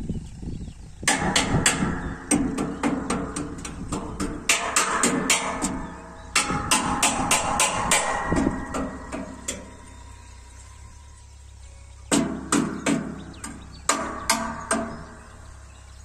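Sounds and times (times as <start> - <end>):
steady low hum: 0.0 - 16.0
rapid sharp knocks: 1.0 - 9.8, 12.1 - 15.4.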